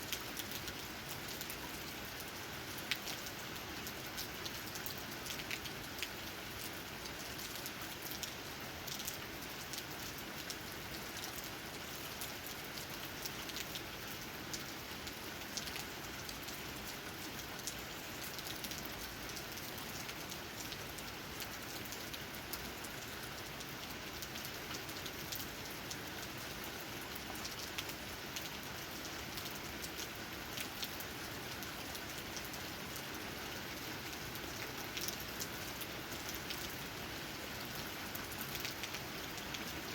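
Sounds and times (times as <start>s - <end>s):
rain falling: 0.0s - 39.9s
raindrops tapping on leaves: 0.0s - 39.9s.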